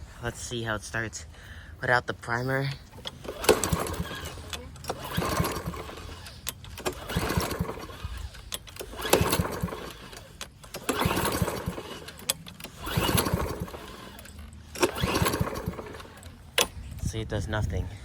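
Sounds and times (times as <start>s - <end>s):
lawn mower engine pull-starting: 0.0s - 17.7s.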